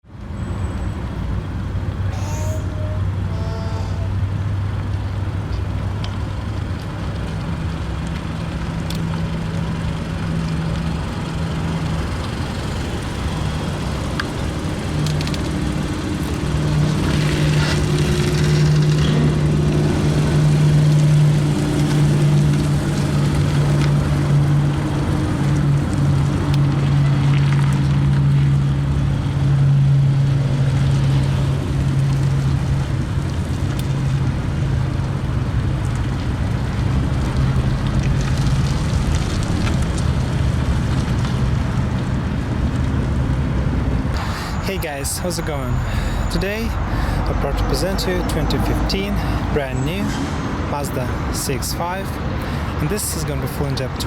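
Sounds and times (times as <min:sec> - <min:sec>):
car engine running: 0:40.0 - 0:49.9.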